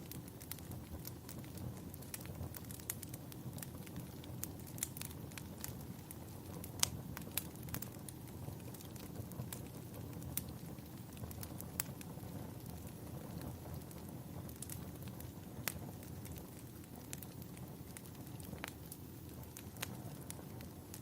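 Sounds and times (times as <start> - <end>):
sharp pops of fire: 0.0 - 21.0
wood fire crackling: 0.0 - 21.0.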